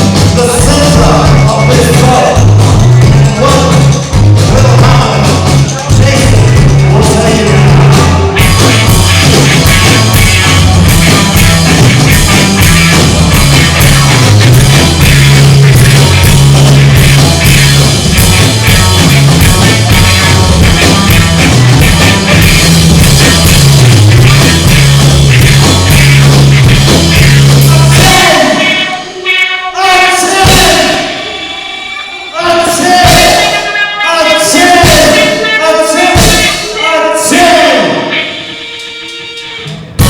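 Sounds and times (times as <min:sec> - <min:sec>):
bass line: 0:00.0 - 0:40.0
drum kit beat: 0:00.0 - 0:40.0
rock band playing: 0:00.0 - 0:40.0.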